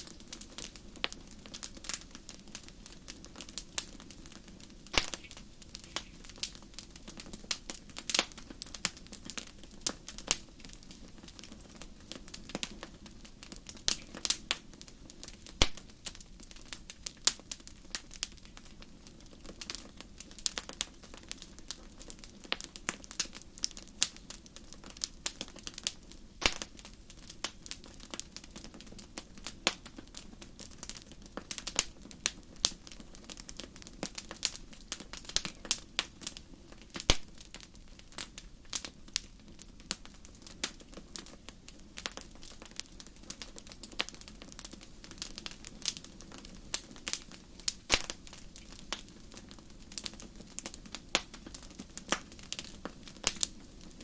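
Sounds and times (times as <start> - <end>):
fire crackling: 0.0 - 54.0.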